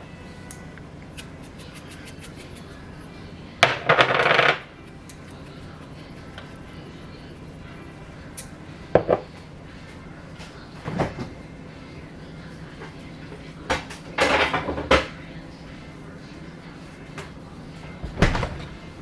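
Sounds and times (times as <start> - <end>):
pots and dishes clattering: 13.7 - 15.1.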